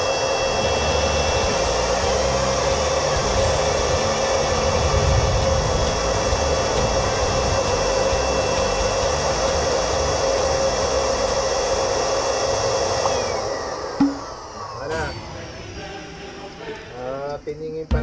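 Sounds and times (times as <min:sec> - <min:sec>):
electric air blower whine: 0:00.0 - 0:18.0.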